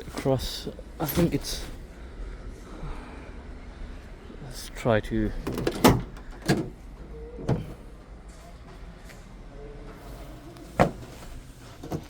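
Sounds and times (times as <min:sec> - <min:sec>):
bed cover clunking: 0:10.8 - 0:12.0.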